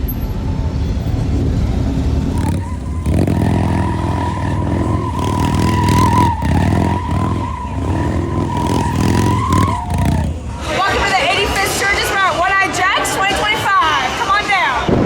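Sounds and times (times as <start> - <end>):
motorcycle engines revving: 0.7 - 14.5
high-pitched squeal: 2.4 - 10.8.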